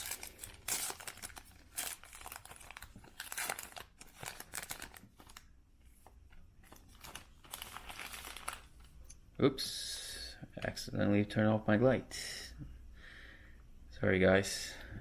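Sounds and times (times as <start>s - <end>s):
plastic wrapper tearing and crinkling: 0.0s - 5.5s, 6.6s - 9.0s.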